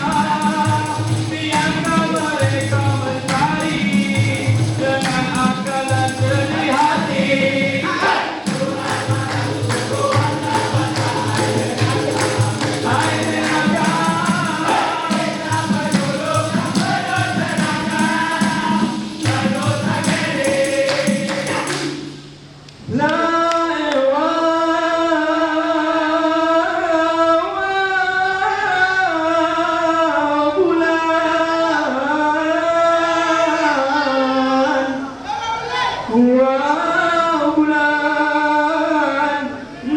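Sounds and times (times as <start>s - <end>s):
rhythmic percussive beat: 0.0s - 22.5s
vocal group singing in harmony: 0.0s - 39.9s.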